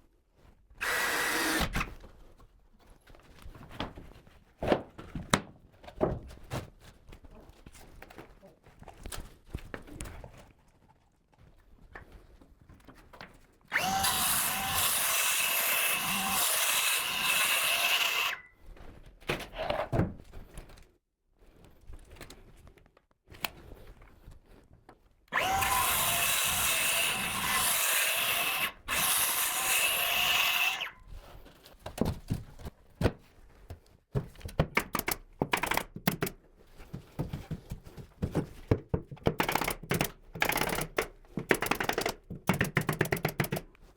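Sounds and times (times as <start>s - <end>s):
electric drill running: 0.8s - 1.8s, 13.7s - 18.5s, 25.4s - 31.0s
short clicks and knocks: 39.2s - 43.7s.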